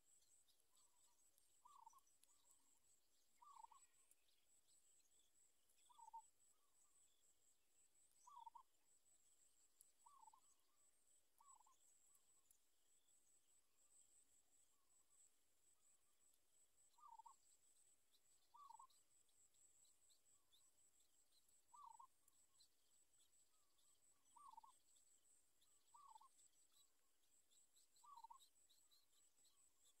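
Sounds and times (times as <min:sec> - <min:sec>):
faint low bird calls: 0:00.0 - 0:07.3, 0:08.1 - 0:08.8, 0:09.4 - 0:12.6, 0:16.8 - 0:17.6, 0:18.2 - 0:30.0
faint high-pitched chirring: 0:00.0 - 0:30.0.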